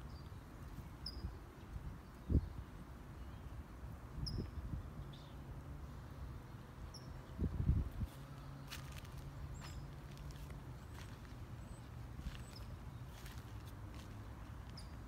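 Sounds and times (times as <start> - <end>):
bird chirping: 1.0 - 1.4, 4.2 - 5.4.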